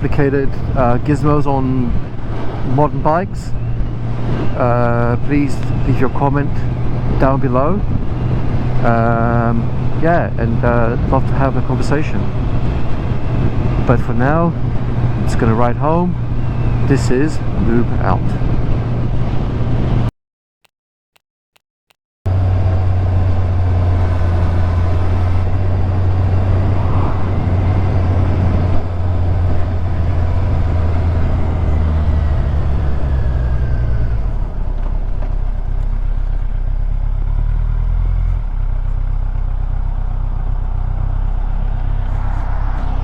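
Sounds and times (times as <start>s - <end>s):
wind rush: 24.4s - 34.7s.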